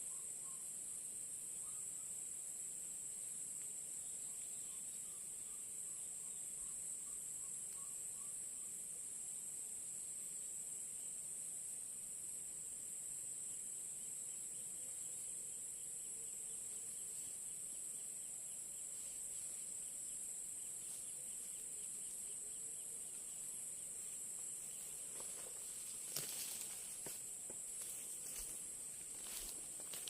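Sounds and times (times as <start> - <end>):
insects chorus: 0.0 - 30.0
rustle: 18.8 - 22.2, 23.2 - 30.0.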